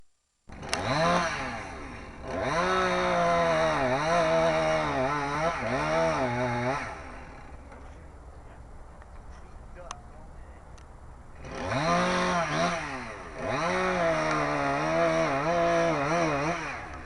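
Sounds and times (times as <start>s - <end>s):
chainsaw revving: 0.5s - 7.9s, 11.4s - 17.0s.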